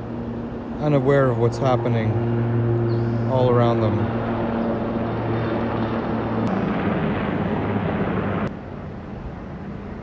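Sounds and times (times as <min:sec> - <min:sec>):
engine drone: 0:00.0 - 0:10.0
rushing noise: 0:05.0 - 0:08.8.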